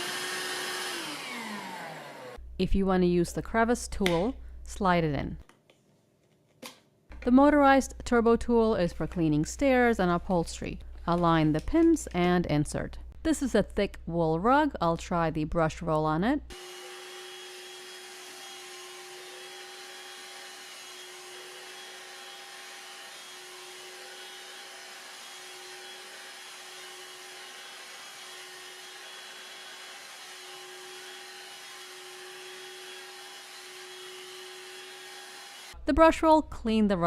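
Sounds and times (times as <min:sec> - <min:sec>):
handheld vacuum running: 0:00.0 - 0:02.4, 0:16.5 - 0:35.8.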